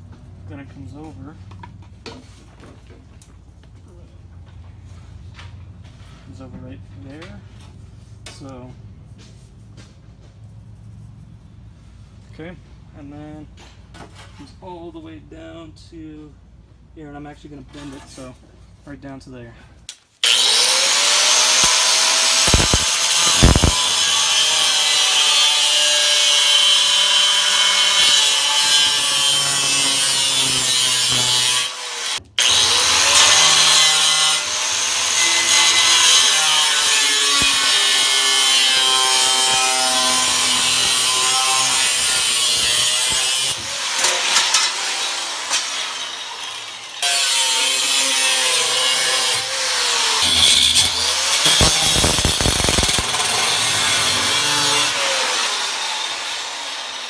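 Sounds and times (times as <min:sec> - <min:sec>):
power tool cutting sheet steel: 0:20.2 - 0:57.0.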